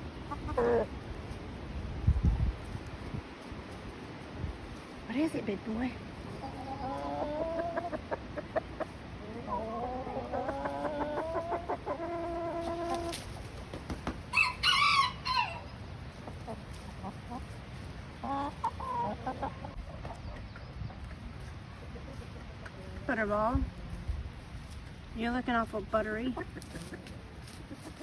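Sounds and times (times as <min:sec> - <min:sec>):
chicken clucking: 0:00.0 - 0:04.0, 0:04.8 - 0:28.0
rooster crowing: 0:14.3 - 0:15.7
high-pitched chicken call: 0:14.3 - 0:15.8.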